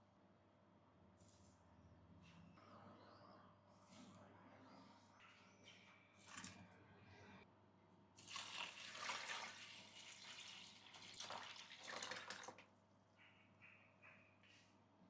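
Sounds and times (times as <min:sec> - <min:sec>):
water running and splashing: 0:08.2 - 0:12.6.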